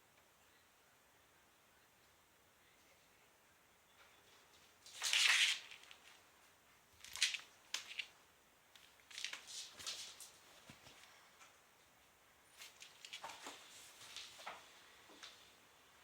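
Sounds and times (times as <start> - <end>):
kittens scratching and rustling: 4.2 - 8.2, 8.8 - 11.2, 12.5 - 15.4.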